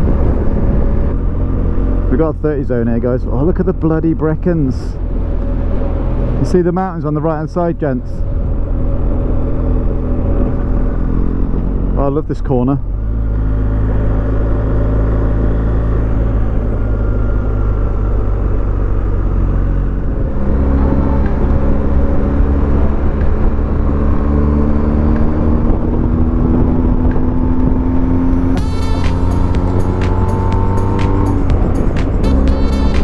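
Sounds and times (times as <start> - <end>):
wind rush: 0.0 - 2.6, 13.5 - 33.0
motorcycle engine accelerating: 12.8 - 33.0.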